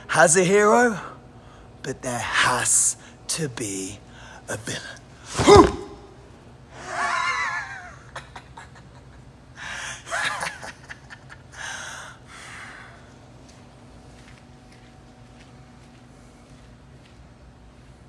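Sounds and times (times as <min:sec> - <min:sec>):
man's villain laugh: 0:06.8 - 0:09.3, 0:10.0 - 0:11.6.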